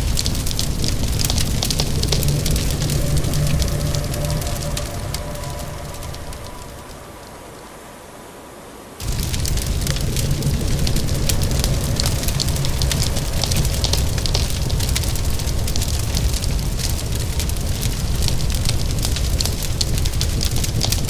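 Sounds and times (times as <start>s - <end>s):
fire crackling and popping: 0.0s - 7.3s, 9.0s - 21.0s.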